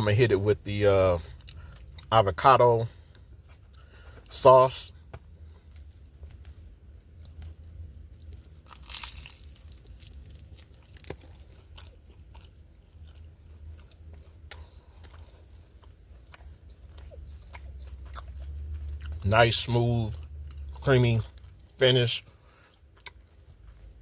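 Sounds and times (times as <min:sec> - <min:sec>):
crunchy bite and chewing: 0:05.5 - 0:21.5, 0:22.3 - 0:24.0.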